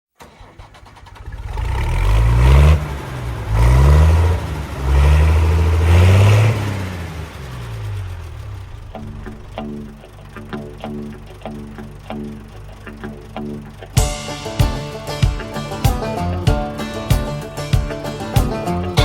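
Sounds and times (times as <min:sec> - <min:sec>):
vehicle engine revving: 0:00.3 - 0:14.0.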